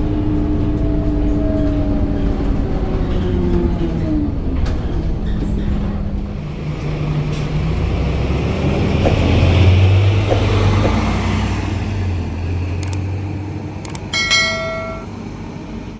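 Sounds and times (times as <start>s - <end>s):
bus diesel engine drone: 0.0s - 15.9s
faint clicks: 12.8s - 13.0s.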